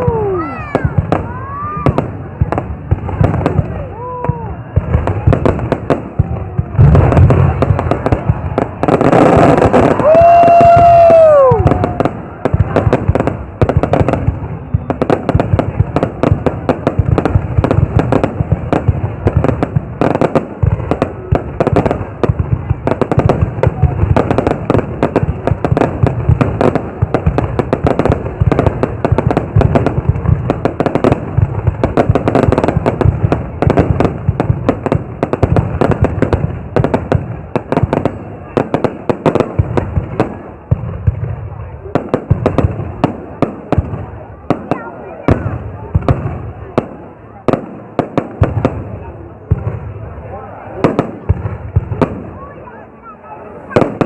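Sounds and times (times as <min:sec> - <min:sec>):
fireworks bangs and crackling: 0:00.0 - 0:54.0
firework whistling tone: 0:14.4 - 0:15.3.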